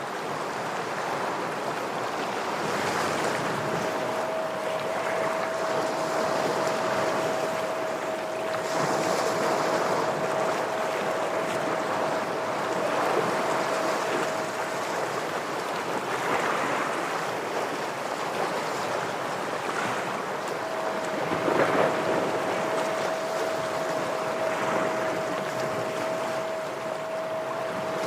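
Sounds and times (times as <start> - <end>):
ocean waves on rocks: 0.0 - 28.0
steady tone: 2.6 - 28.0.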